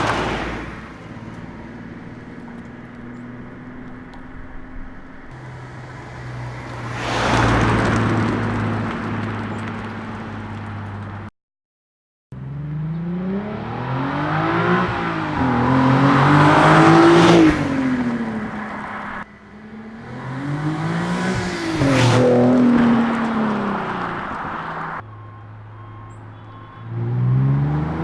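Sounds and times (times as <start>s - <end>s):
car accelerating past: 0.0s - 10.8s, 12.4s - 25.0s.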